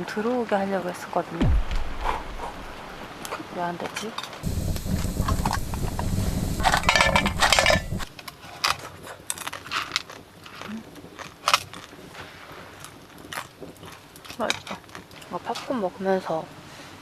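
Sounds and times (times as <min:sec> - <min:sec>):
small clicks and rustles: 0:03.2 - 0:15.9
popcorn machine humming: 0:04.4 - 0:08.1
popcorn rattling: 0:04.4 - 0:08.1.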